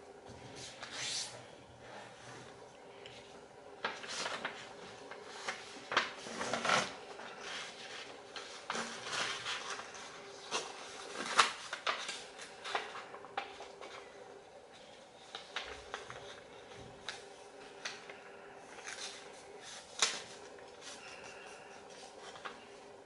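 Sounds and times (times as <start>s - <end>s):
paper rustling and crinkling: 3.2s - 23.0s.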